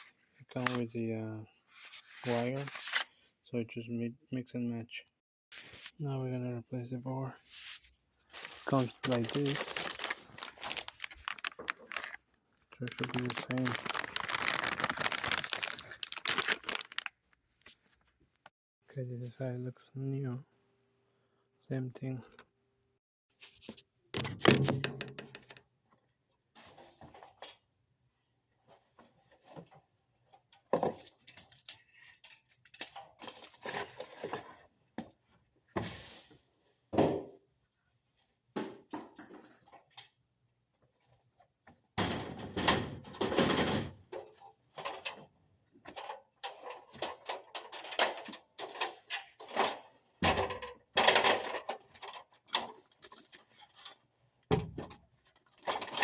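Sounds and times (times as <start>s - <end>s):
hands handling parts and wiring: 7.5s - 18.5s, 44.1s - 56.0s.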